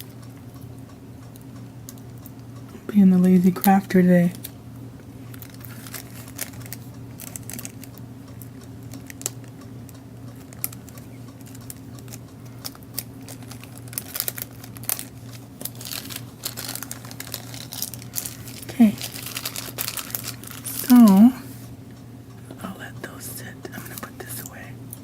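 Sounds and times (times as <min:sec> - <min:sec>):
steady low hum: 0:00.0 - 0:25.0
cellophane bags crinkling: 0:05.3 - 0:08.0, 0:08.9 - 0:09.5, 0:10.4 - 0:21.4
sharp crackles and clicks: 0:05.3 - 0:21.3.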